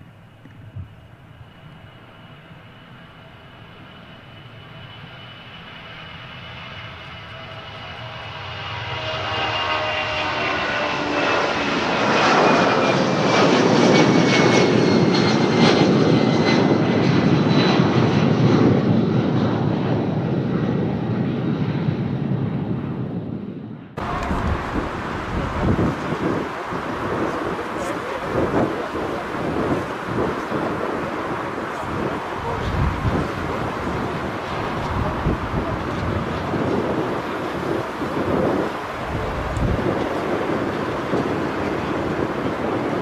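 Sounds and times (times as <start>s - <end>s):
jet airliner passing: 0.0s - 43.0s
jet engine whine: 0.0s - 43.0s.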